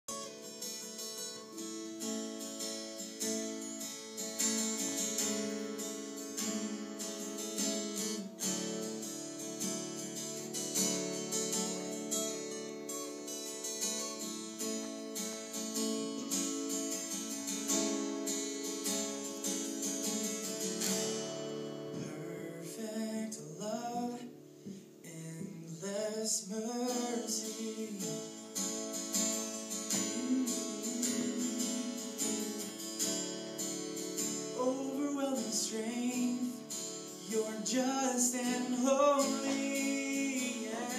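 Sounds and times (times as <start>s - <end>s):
acoustic guitar chords: 0.0s - 40.9s
person singing without words: 21.9s - 24.4s, 25.0s - 28.5s, 29.8s - 33.2s, 34.5s - 40.9s.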